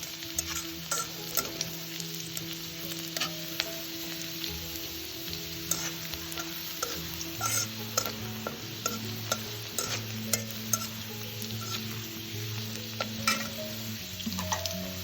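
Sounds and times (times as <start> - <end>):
utensil scraping a pan: 0.0 - 1.7, 3.0 - 3.6, 5.6 - 15.0
food sizzling in a pan: 0.0 - 15.0.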